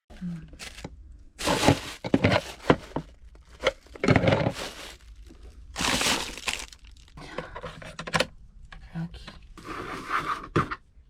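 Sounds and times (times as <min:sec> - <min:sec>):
crackling rustling handling noise: 0:00.2 - 0:07.2.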